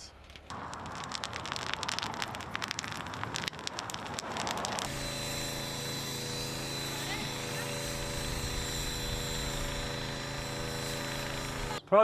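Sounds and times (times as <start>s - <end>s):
crickets being crushed crackling: 0.2s - 6.9s
mechanical hum with high tone: 4.9s - 11.9s.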